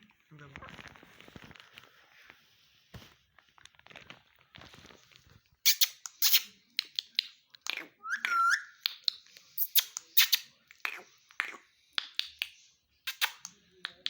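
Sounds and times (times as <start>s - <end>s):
parrot squawking: 7.7s - 8.8s.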